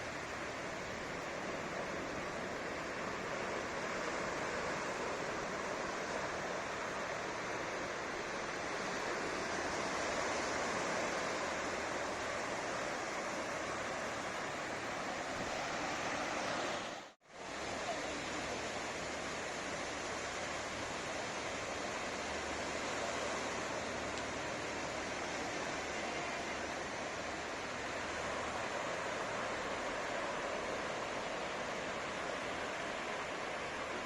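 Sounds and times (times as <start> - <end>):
ocean surf breaking on shore: 0.0 - 34.0.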